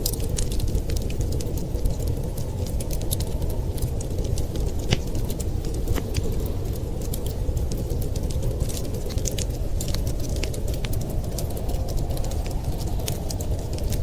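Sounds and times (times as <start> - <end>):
storm wind rumble: 0.0 - 14.0
wood fire crackling: 0.0 - 14.0.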